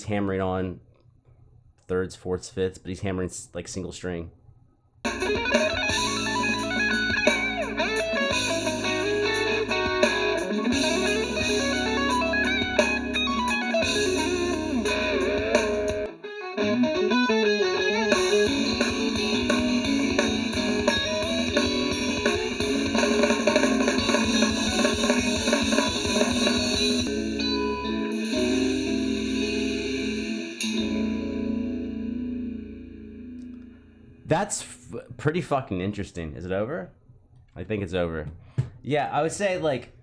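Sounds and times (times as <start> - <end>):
drums and bass: 5.1 - 16.1, 18.1 - 31.4
clean electric guitars: 5.1 - 33.9.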